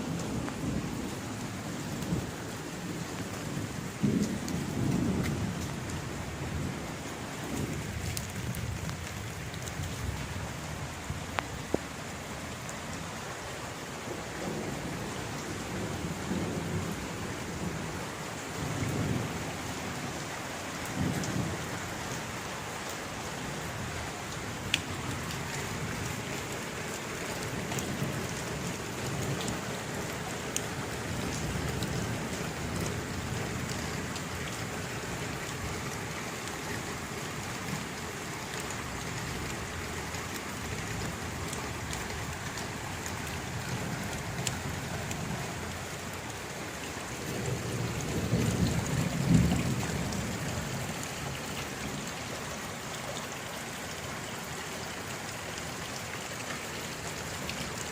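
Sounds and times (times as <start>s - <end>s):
distant thunder rumbling: 0.0s - 10.6s, 47.0s - 51.0s
steady rain falling: 0.0s - 57.9s
rain drop ticks: 0.1s - 6.7s, 7.3s - 13.1s, 20.7s - 57.9s.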